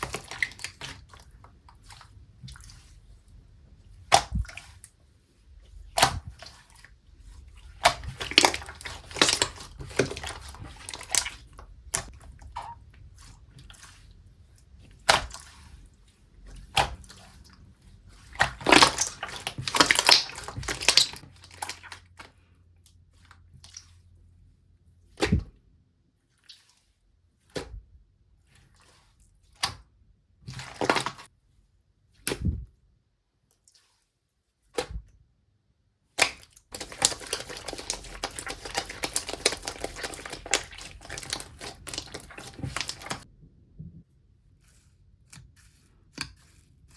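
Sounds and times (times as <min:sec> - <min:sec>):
slime squished by hand: 0:04.0 - 0:04.9, 0:05.8 - 0:15.8, 0:16.5 - 0:22.3, 0:36.1 - 0:43.3.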